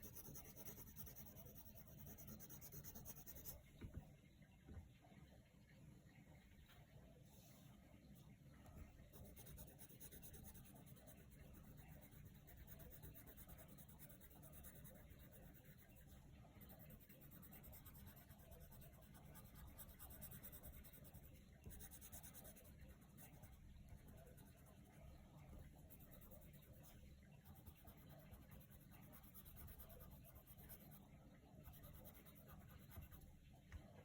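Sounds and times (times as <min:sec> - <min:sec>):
pencil scratching on paper: 0:00.0 - 0:03.6, 0:09.1 - 0:31.0, 0:31.6 - 0:33.3.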